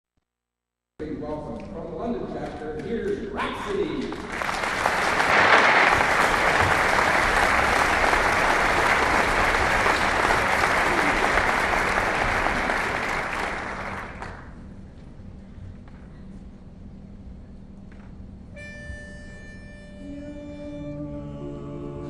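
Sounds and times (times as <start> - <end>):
audience applauding: 3.7 - 14.6.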